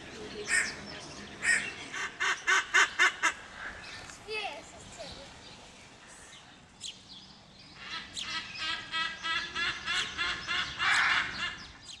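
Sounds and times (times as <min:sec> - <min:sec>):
birds chirping: 0:00.0 - 0:12.0
loud harsh bird call: 0:07.8 - 0:12.0.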